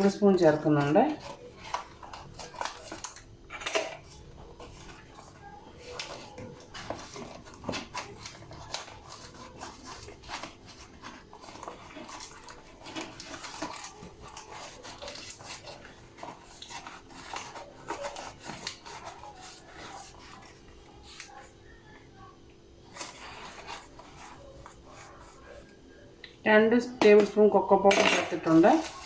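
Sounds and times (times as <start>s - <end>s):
spoon clinking against tin and bowl: 27.0s - 29.0s.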